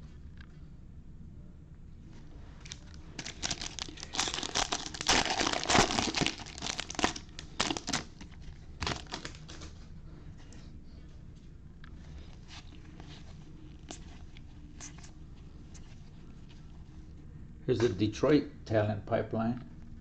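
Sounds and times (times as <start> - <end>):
foil wrapper tearing and crinkling: 2.6 - 9.6.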